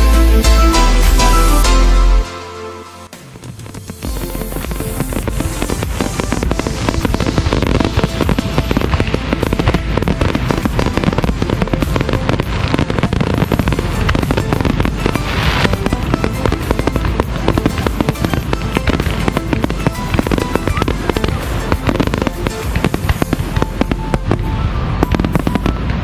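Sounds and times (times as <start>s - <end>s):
fireworks bangs and crackles: 3.0s - 26.0s
firework hiss: 3.2s - 26.0s.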